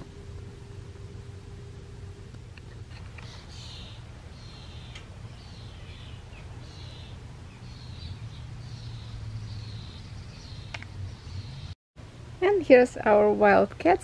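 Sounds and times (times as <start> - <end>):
small birds chirping: 2.4 - 11.8.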